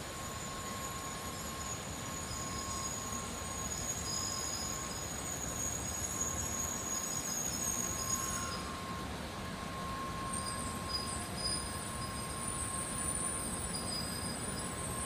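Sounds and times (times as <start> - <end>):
thin high whine: 0.0 - 15.0
train hiss and hum: 0.0 - 15.0.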